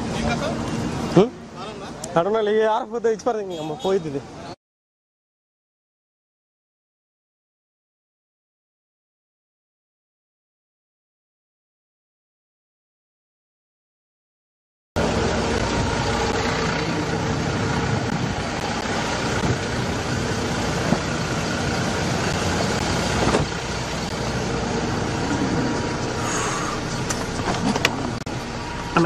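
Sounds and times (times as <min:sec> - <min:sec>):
vehicle engine running: 0:15.0 - 0:29.0.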